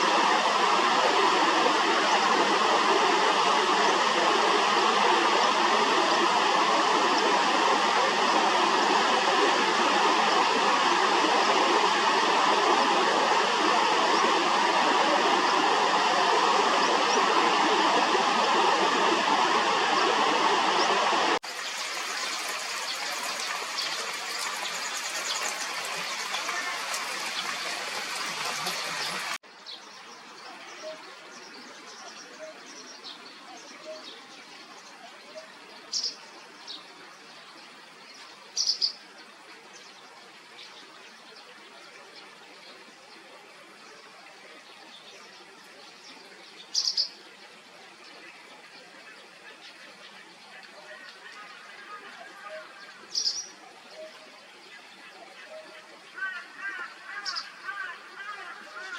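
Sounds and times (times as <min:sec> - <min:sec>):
stream water rushing: 0:00.0 - 0:58.9
outdoor hiss: 0:21.3 - 0:34.9.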